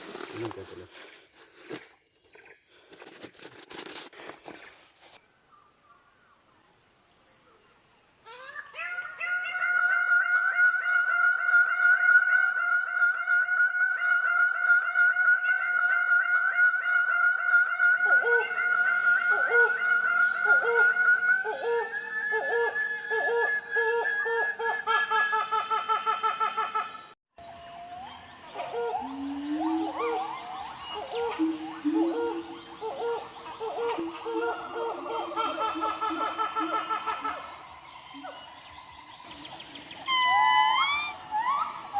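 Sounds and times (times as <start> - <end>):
low repeated animal call: 39.3 - 41.9
loud pulsing animal call: 40.0 - 41.9.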